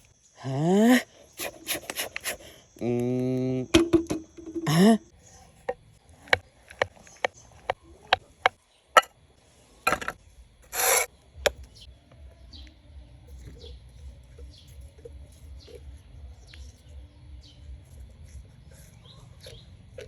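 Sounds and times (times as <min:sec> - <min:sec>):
short rasping scrape: 0:10.7 - 0:11.1.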